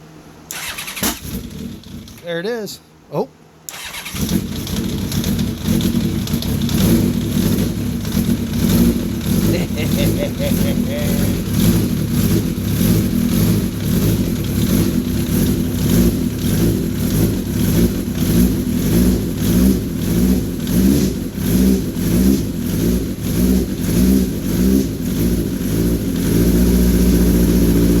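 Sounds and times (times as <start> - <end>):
engine revving on choke: 0.5 - 2.2, 3.7 - 28.0.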